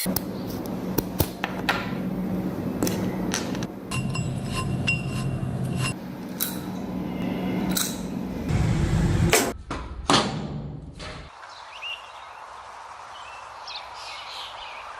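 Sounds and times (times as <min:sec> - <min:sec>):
loud low rumble: 0:06.9 - 0:09.5.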